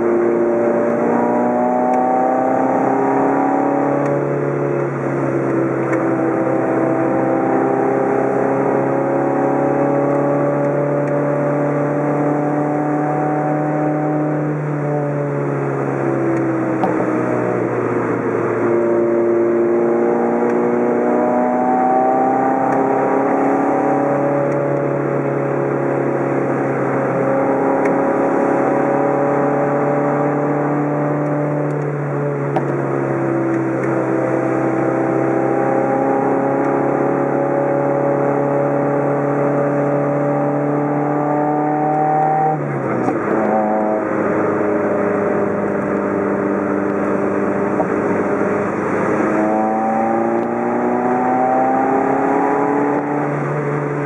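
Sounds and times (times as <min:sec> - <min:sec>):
car engine from inside cabin: 0:00.0 - 0:54.0
road and tyre noise: 0:00.0 - 0:54.0.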